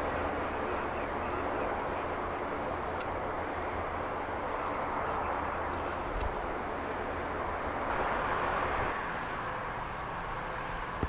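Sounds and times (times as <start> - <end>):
aircraft engines rushing: 0.0 - 11.0.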